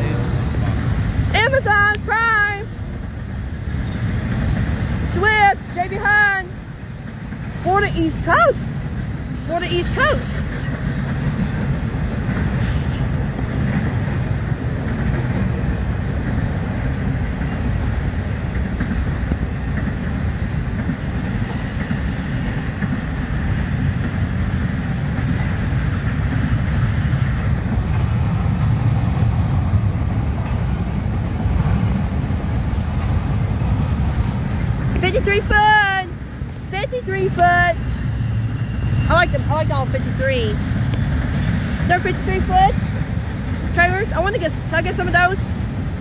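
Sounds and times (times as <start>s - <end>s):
freight train wheels rumbling: 0.0s - 46.0s
high wheel squeal: 7.9s - 13.3s, 17.1s - 25.2s, 36.5s - 42.6s.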